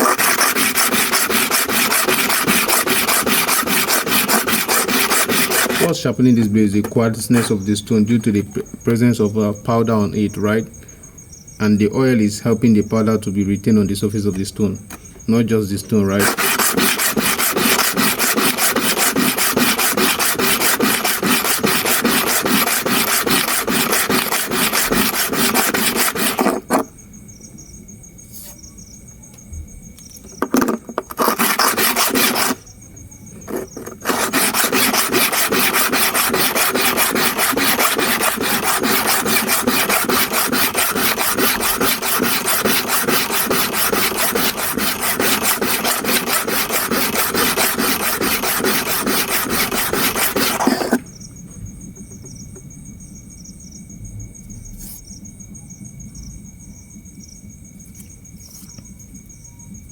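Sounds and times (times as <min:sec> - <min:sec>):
metal rasping on sharpening stone: 0:00.0 - 0:05.9, 0:16.1 - 0:26.9, 0:31.1 - 0:32.6, 0:33.4 - 0:51.0.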